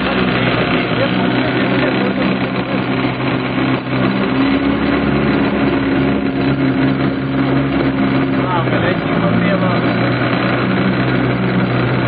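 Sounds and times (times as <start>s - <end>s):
engine running steadily: 0.0s - 12.0s
noisy background: 0.0s - 12.0s.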